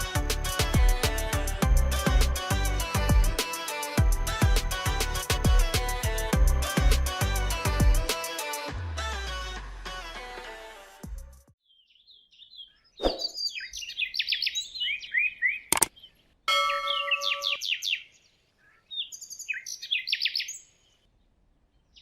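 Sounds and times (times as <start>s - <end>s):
bird chirping: 11.6s - 22.0s
sharp click: 15.7s - 16.0s.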